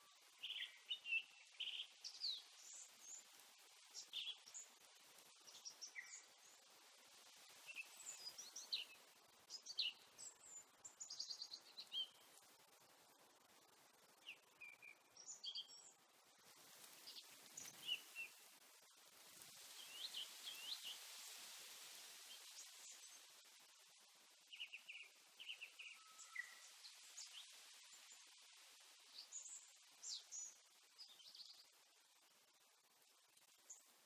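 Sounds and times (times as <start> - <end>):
soft background hiss: 0.0 - 34.0
birds chirping and trilling: 5.4 - 6.6, 24.5 - 28.1.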